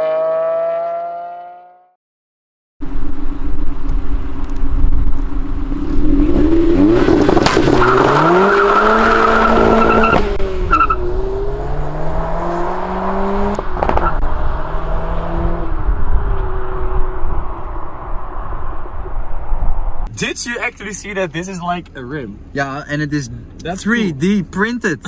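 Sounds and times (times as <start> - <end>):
car engine revving hard: 0.0 - 1.7, 5.7 - 17.7.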